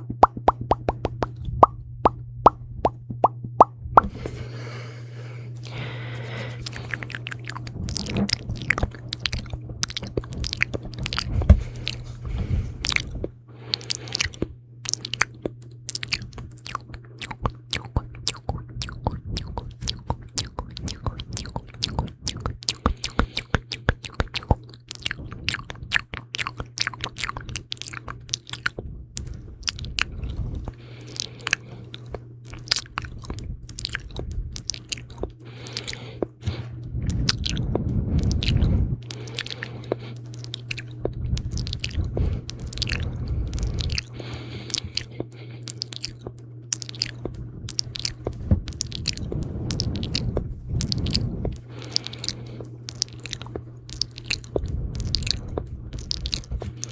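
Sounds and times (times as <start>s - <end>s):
wet mouth clicks: 0.0s - 4.2s, 5.6s - 12.1s, 12.8s - 56.9s
low rumble: 0.0s - 13.5s, 27.4s - 30.8s, 31.4s - 40.0s, 40.7s - 45.1s, 46.0s - 56.9s.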